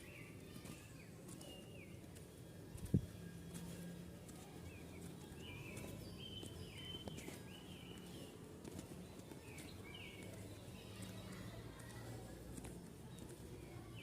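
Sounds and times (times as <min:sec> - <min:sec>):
faint low hum: 0:00.2 - 0:14.0
bird chirping: 0:04.7 - 0:11.5.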